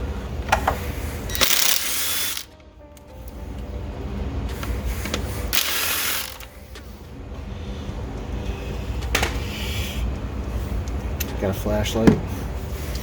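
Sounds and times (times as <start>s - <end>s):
ratchet clicking: 1.3s - 2.5s, 5.5s - 6.5s.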